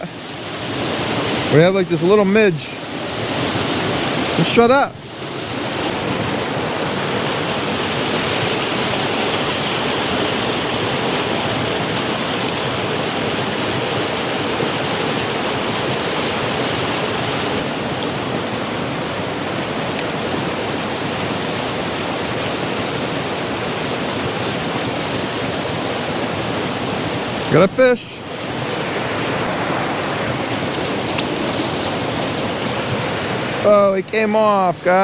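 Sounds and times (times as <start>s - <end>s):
creek water rushing: 0.0s - 35.0s.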